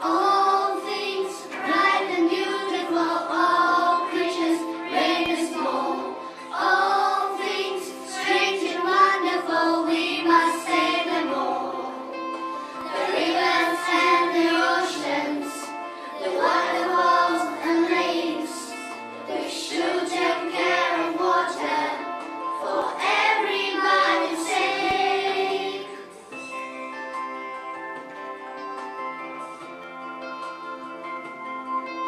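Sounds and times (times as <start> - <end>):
children singing: 0.0 - 12.0, 12.8 - 26.2.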